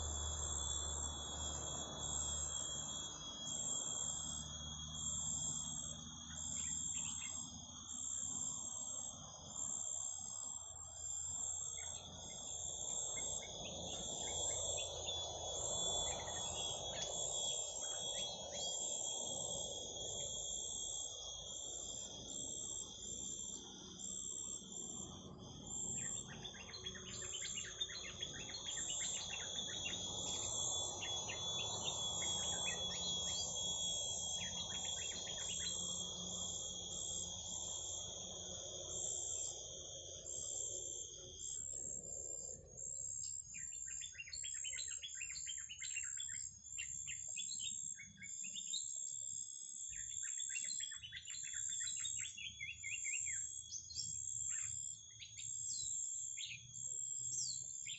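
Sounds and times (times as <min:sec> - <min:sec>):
shrill insect-like tone: 0:00.0 - 0:57.9
small birds chirping: 0:25.5 - 0:37.9, 0:43.2 - 0:48.9, 0:49.9 - 0:57.9.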